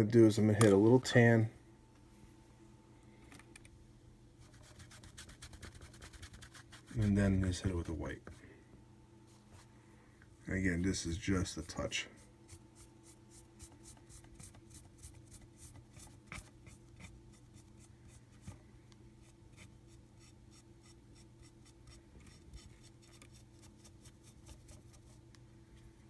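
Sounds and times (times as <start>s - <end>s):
low steady hum: 0.0s - 26.0s
paintbrush strokes on plaster: 11.0s - 18.6s.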